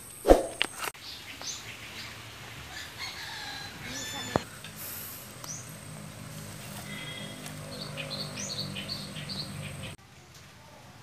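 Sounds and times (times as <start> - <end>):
small bird chirping: 3.9 - 10.0.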